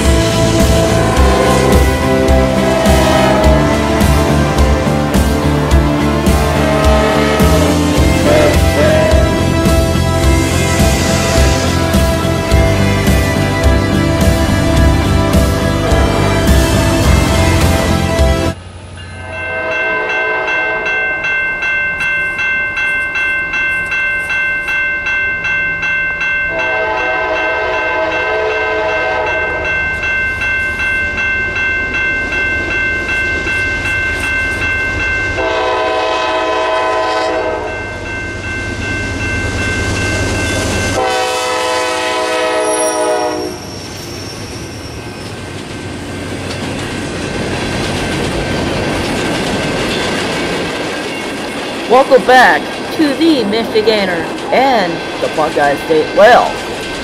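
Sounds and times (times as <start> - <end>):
locomotive approaching and passing: 0.0 - 57.0
locomotive horn blasts: 0.5 - 5.1, 6.2 - 9.8, 15.7 - 18.5, 19.1 - 21.0, 26.5 - 29.7, 35.4 - 37.8, 41.0 - 43.7
rail cars clattering over joints: 37.9 - 57.0.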